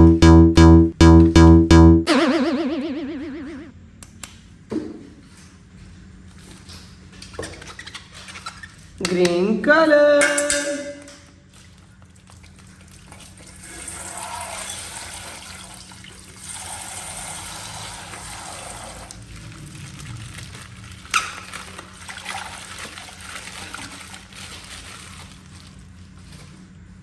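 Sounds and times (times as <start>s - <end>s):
water pouring and trickling: 11.7s - 25.8s.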